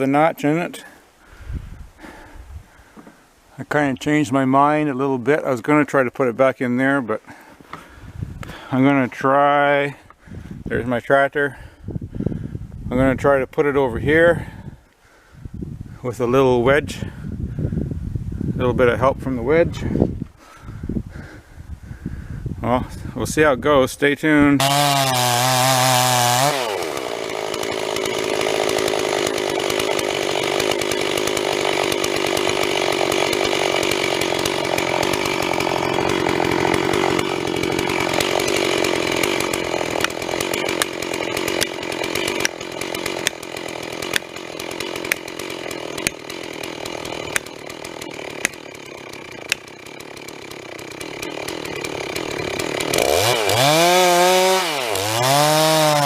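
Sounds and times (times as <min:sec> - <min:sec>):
chainsaw cutting wood: 0:24.6 - 0:56.0.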